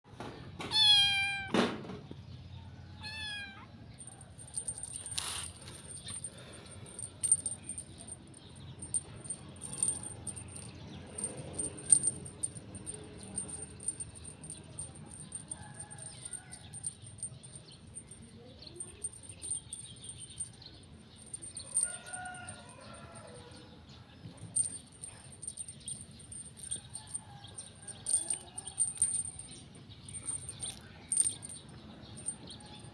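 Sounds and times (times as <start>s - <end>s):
cat meowing: 0.7s - 1.5s, 3.0s - 3.7s
clicks and rustles: 4.0s - 20.6s.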